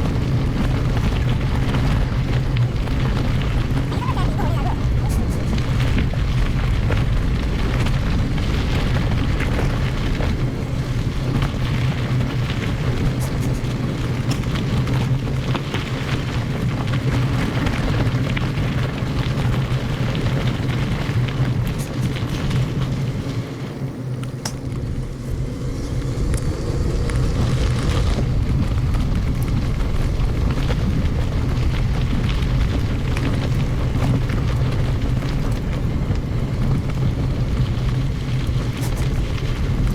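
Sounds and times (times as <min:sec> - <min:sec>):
bike tyres rolling over gravel: 0:00.0 - 0:39.9
wind rumbling on microphone: 0:00.0 - 0:39.9.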